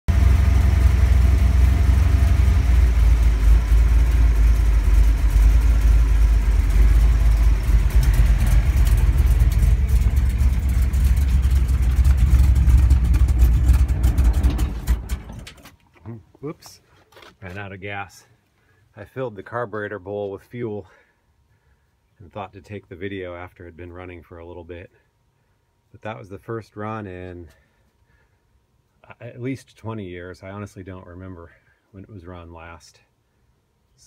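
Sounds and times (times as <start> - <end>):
engine running steadily: 0.1 - 15.7.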